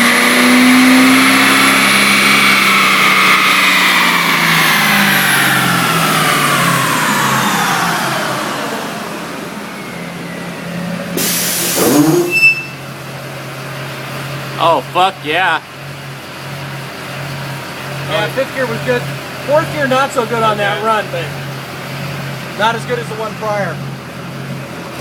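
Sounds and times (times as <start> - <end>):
diesel engine idling: 2.4 - 25.0
loud hiss: 11.2 - 12.3
drivetrain whine falling in pitch: 11.8 - 12.8.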